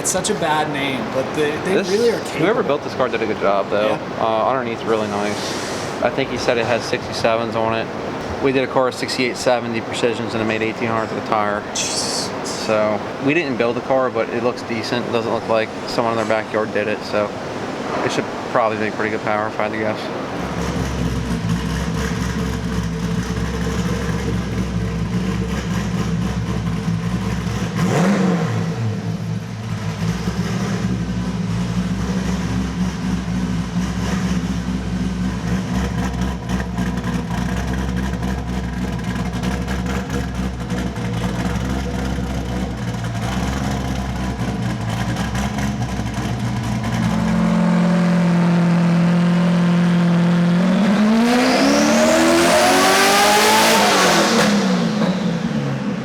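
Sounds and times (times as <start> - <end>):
car engine running on dyno: 18.9 - 56.0.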